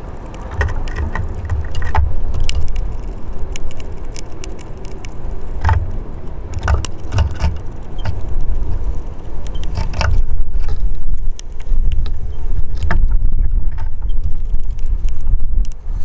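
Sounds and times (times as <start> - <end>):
sharp clicks and taps: 0.0 - 10.2
wind buffeting microphone: 0.0 - 16.0.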